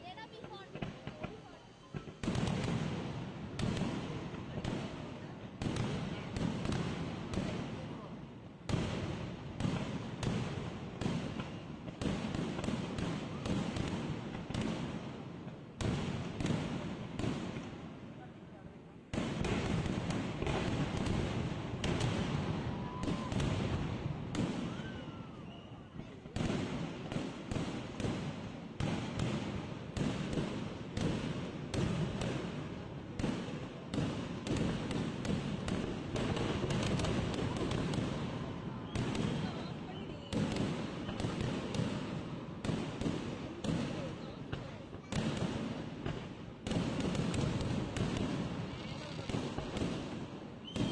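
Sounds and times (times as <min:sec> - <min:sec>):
fireworks bangs with rumbling echo: 0:00.1 - 0:50.9.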